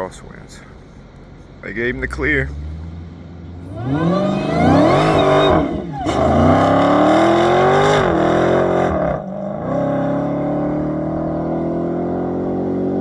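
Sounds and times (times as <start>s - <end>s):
gear upshifts: 1.2s - 8.7s
race engine revving up: 1.8s - 13.0s.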